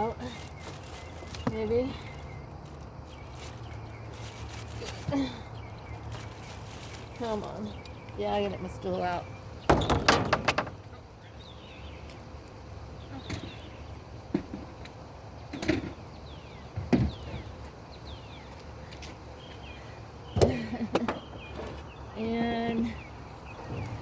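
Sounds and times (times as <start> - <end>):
knocks of objects handled: 9.7 - 11.0.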